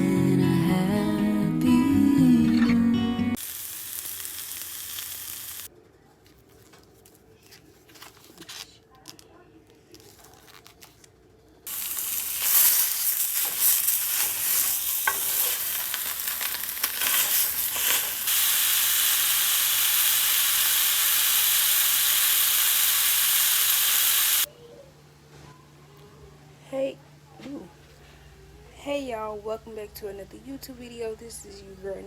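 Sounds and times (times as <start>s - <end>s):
food sizzling in a pan: 3.4s - 5.7s, 11.7s - 24.5s
stirring and utensil clatter: 13.4s - 15.8s.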